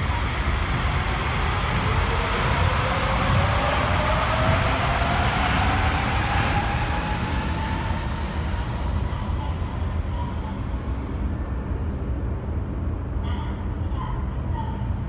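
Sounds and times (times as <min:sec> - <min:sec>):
train inverter whine: 0:00.0 - 0:15.0
train running rumble: 0:00.0 - 0:15.0.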